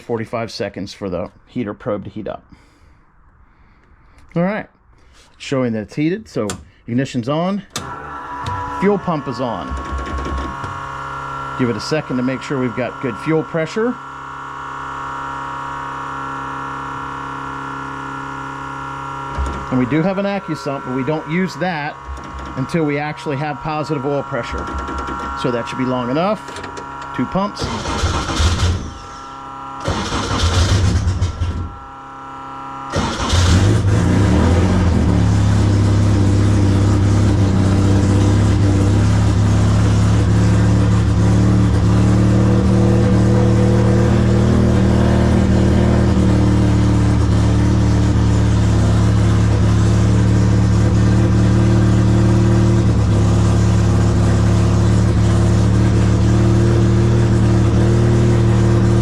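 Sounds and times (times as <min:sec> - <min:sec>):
engine cranking: 0:07.7 - 0:11.0, 0:21.8 - 0:23.1, 0:24.4 - 0:31.8, 0:32.9 - 0:35.0
car engine idling: 0:07.8 - 0:15.0, 0:16.4 - 0:32.0, 0:32.9 - 0:59.0.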